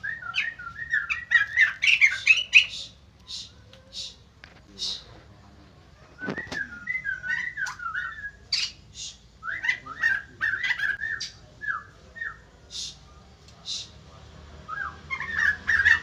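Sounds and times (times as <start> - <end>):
bird whistled song: 0.0 - 4.2, 6.2 - 13.0, 14.7 - 16.0.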